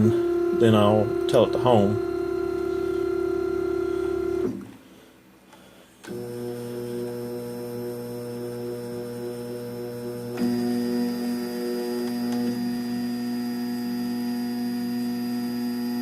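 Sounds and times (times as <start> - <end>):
stepper motors whining: 0.0 - 4.6.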